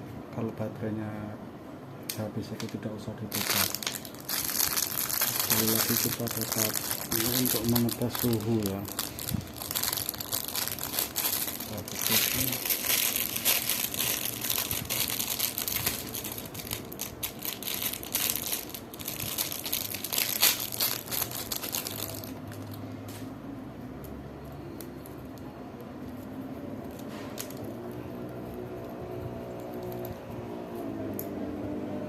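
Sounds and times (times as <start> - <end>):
low steady hum: 0.0 - 32.0
plastic wrapping crinkling: 2.5 - 22.8, 26.1 - 30.1.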